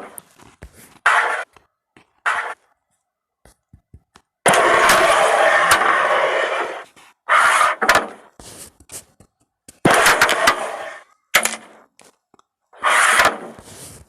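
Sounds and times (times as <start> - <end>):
carrom pieces sliding: 12.8 - 14.0.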